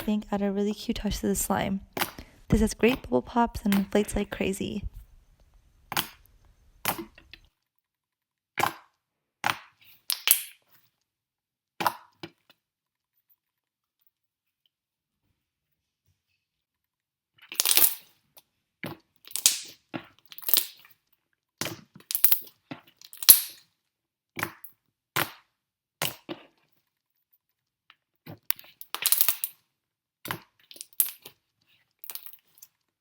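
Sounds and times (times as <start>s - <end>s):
slime bubbles popping: 10.1s - 10.5s, 19.3s - 19.8s.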